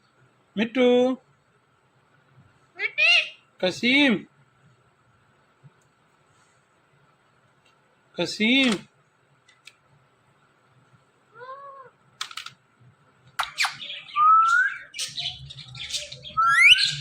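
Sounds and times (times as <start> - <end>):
parrot calling: 2.8 - 3.5, 11.3 - 11.9, 13.4 - 17.0
parrot whistles and squawks: 13.4 - 17.0.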